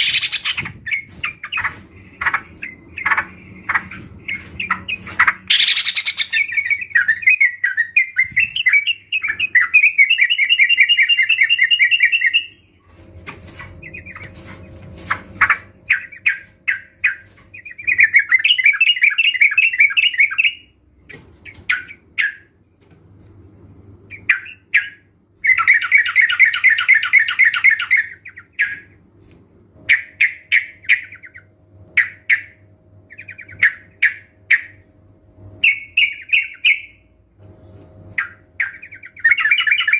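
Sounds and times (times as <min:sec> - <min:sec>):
birds chattering and calling: 0:00.0 - 0:12.6, 0:13.3 - 0:20.5, 0:24.1 - 0:28.9, 0:38.1 - 0:39.9.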